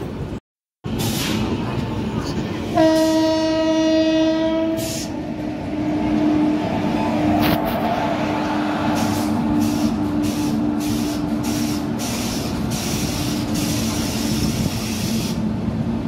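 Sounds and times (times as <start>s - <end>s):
train wheels rumbling: 0.0s - 16.0s
rushing air: 4.8s - 15.6s.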